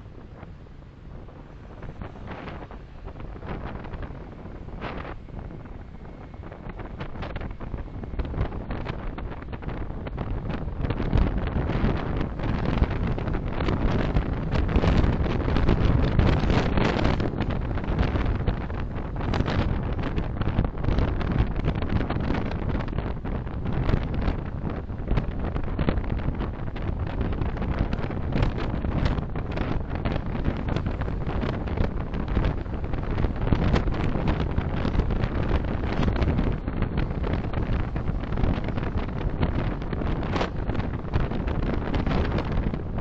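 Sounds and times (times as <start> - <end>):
road and wind noise: 0.0 - 43.0.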